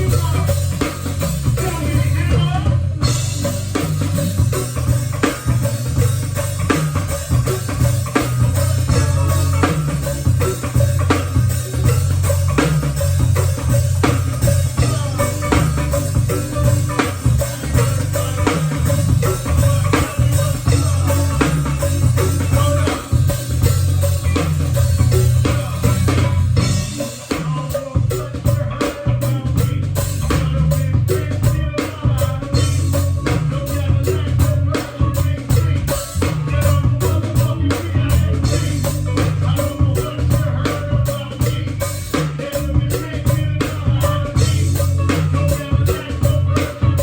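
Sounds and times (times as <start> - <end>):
drum kit: 0.0 - 47.0
guitar: 0.0 - 47.0
heavy bass line: 0.0 - 47.0.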